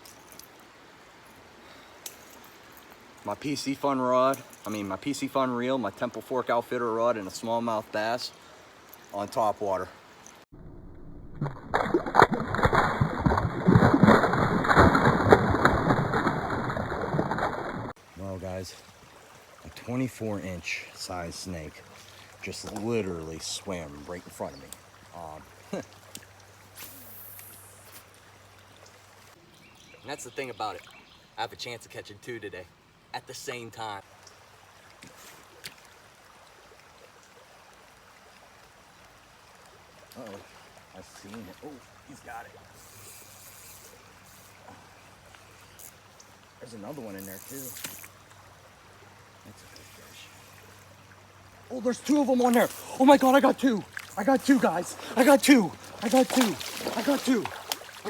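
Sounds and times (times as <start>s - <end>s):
creek water splashing: 11.4s - 31.1s, 34.0s - 58.0s.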